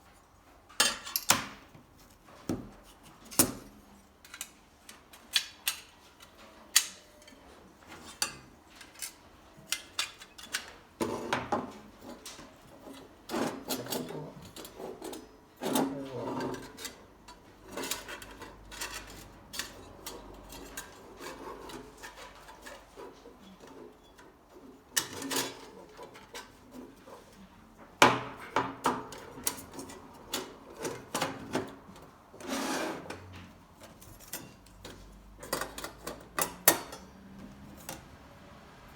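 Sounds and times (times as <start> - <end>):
rubbing or scraping: 32.4 - 33.3.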